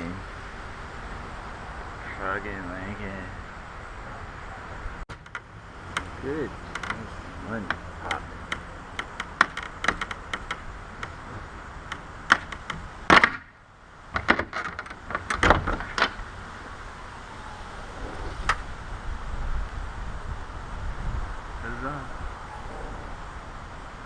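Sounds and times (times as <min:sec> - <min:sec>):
tools clicking and knocking: 0:05.1 - 0:11.2, 0:11.9 - 0:12.9.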